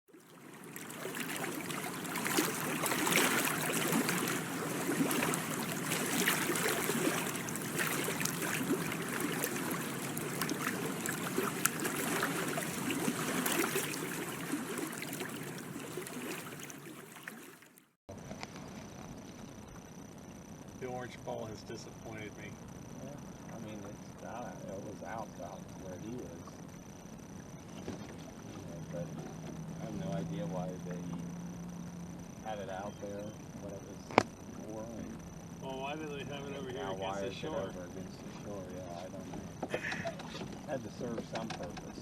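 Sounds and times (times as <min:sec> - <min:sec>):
water splashing and trickling: 0:00.1 - 0:18.0.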